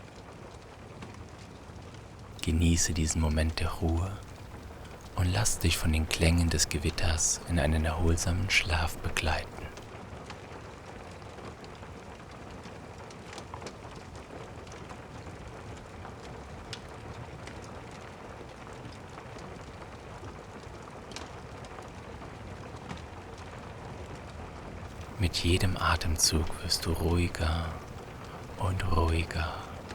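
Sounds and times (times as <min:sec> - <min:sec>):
steady rain: 0:02.4 - 0:09.9, 0:25.0 - 0:29.9
wood fire crackling: 0:02.4 - 0:09.9, 0:25.0 - 0:29.9.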